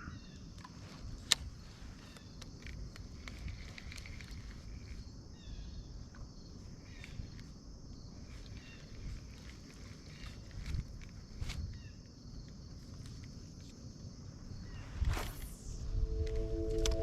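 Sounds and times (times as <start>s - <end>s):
insects trilling: 0.0s - 17.0s
low rumble: 14.6s - 17.0s.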